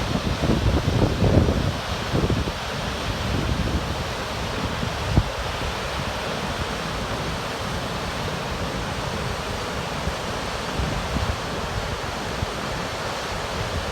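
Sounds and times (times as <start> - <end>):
wind buffeting microphone: 0.0 - 6.7
waterfall rushing: 0.0 - 13.9.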